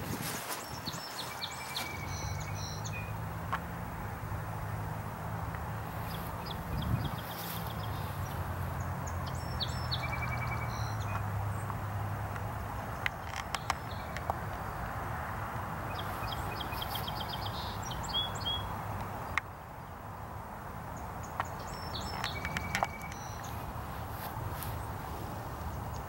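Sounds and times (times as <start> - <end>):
birds chirping: 0.0 - 26.0
sharp clicks: 11.0 - 14.6, 21.4 - 23.5.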